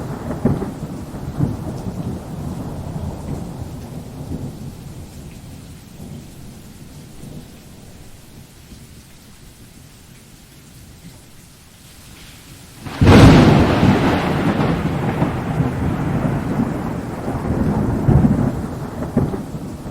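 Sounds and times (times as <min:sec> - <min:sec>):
thunderclap and rumble: 0:00.0 - 0:07.6, 0:12.8 - 0:19.9
steady rain: 0:00.0 - 0:19.9.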